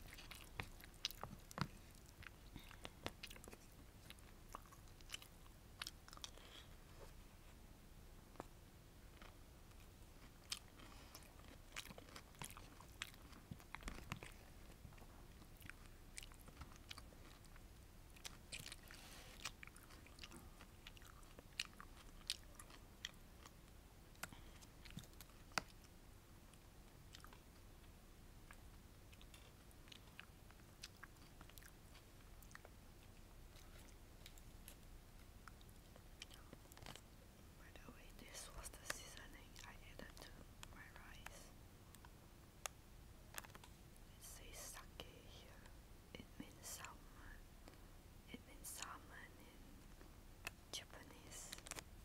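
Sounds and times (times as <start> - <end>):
chewing and mouth sounds: 0.0 - 7.1, 9.1 - 25.9, 26.5 - 37.1, 38.2 - 43.8.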